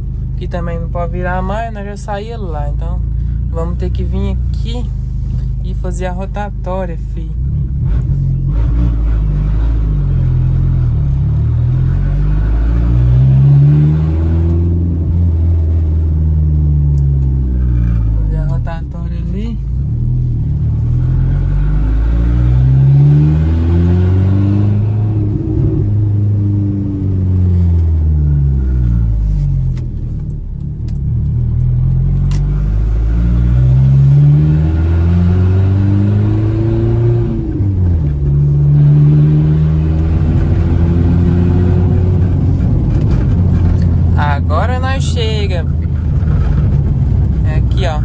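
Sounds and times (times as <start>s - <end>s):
truck engine revving: 7.7s - 18.2s, 19.9s - 29.2s, 31.0s - 48.0s.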